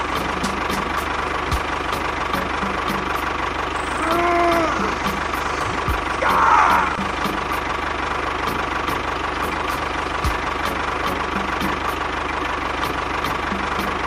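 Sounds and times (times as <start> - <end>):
small motor ticking and humming: 0.0 - 6.3.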